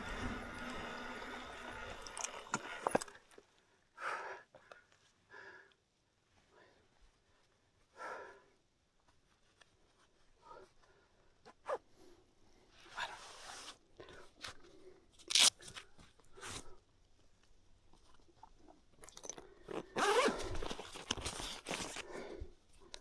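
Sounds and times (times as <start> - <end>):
bike tyres crunching on dirt: 0.0 - 3.1.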